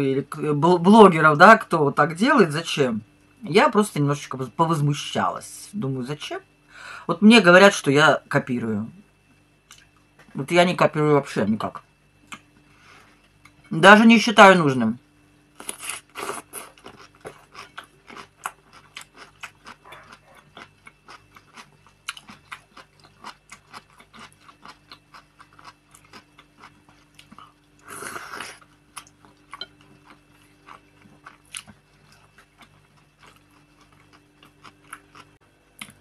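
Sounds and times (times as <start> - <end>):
person chewing with wet smacks: 15.6 - 36.0.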